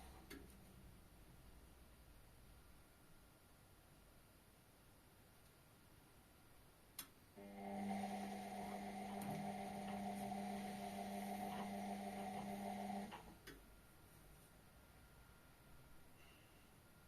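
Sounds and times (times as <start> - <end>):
washing machine electrical hum: 6.9 - 16.1.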